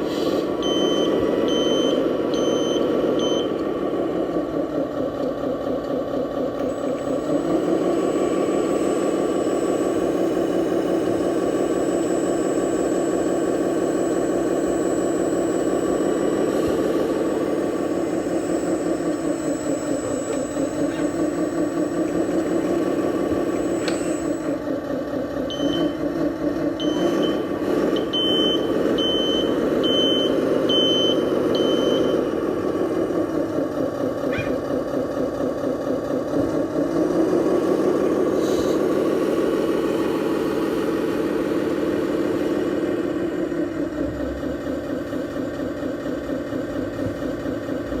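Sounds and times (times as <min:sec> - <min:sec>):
toy truck engine running: 0:06.5 - 0:24.8.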